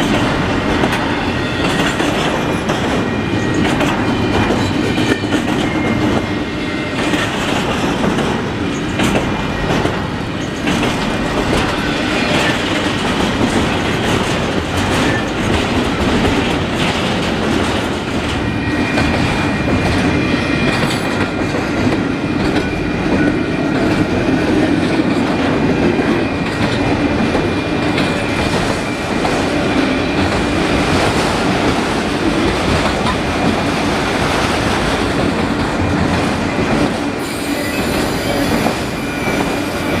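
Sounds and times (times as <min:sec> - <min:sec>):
train wheels clacking on rail joints: 0:00.0 - 0:40.0
wheel squeal: 0:37.2 - 0:40.0.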